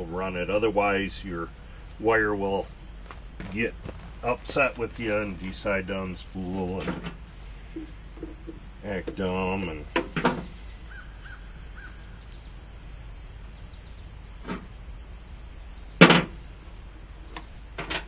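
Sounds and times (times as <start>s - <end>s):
crickets chirring: 0.0s - 18.0s.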